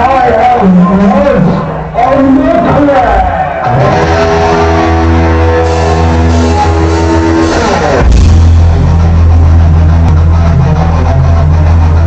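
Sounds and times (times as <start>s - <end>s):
heavy metal band playing: 0.0s - 12.0s
distorted guitar chord: 3.7s - 11.8s.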